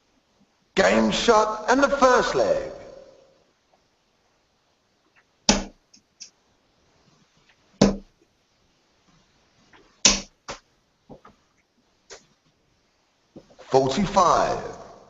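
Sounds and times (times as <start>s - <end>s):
darts thudding into dartboard: 5.5s - 5.8s, 7.8s - 8.1s, 10.0s - 10.6s.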